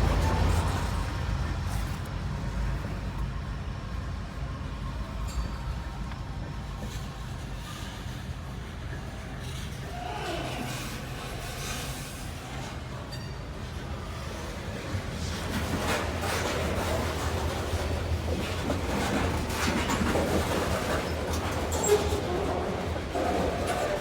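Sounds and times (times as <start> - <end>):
train engine hum: 0.0 - 24.0
wheels clattering over track joints: 13.3 - 24.0.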